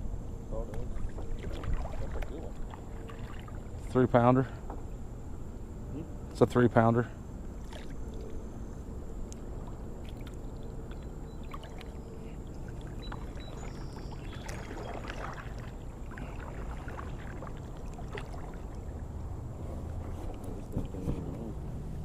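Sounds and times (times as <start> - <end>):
steady low rumble: 0.0 - 22.0
small splashes: 0.8 - 3.9, 7.6 - 8.3, 9.3 - 19.4
water sloshing around kayak: 0.8 - 4.9, 7.5 - 22.0.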